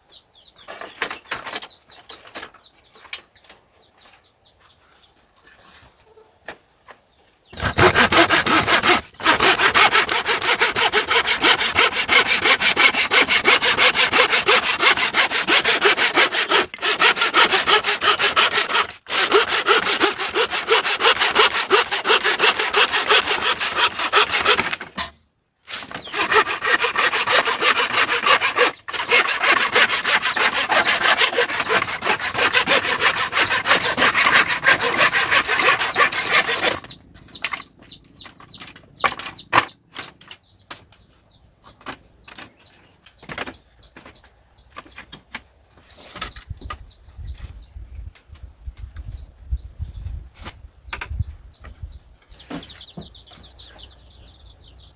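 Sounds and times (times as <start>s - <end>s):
hand saw cutting wood: 7.6s - 37.6s
faint high peeping: 33.8s - 48.2s, 48.9s - 54.9s.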